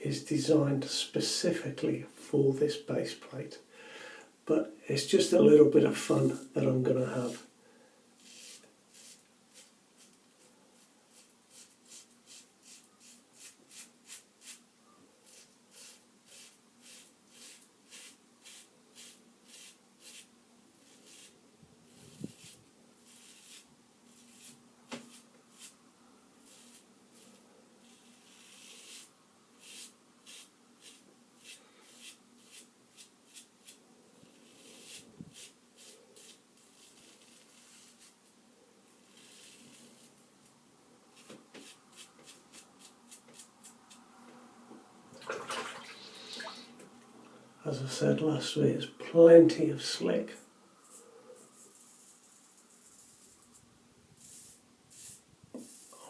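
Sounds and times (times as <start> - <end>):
razor scratching through stubble: 8.2 - 10.2, 10.8 - 14.6, 15.3 - 25.8, 26.4 - 38.2, 39.0 - 40.2, 41.1 - 44.0, 50.8 - 53.6, 54.2 - 56.0
water splashing: 45.2 - 46.7.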